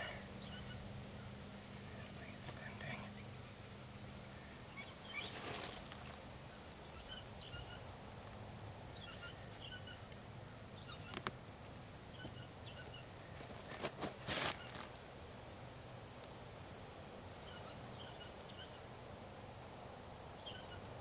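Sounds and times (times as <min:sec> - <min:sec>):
small bird chirping: 0:00.0 - 0:07.9, 0:08.9 - 0:11.3, 0:12.1 - 0:13.7, 0:14.3 - 0:14.9, 0:17.4 - 0:18.9, 0:20.4 - 0:21.0.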